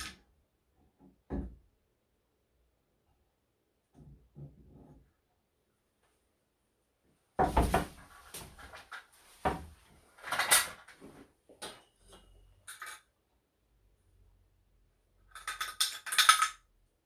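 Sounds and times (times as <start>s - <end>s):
hard objects knocking and clattering: 7.4s - 8.6s.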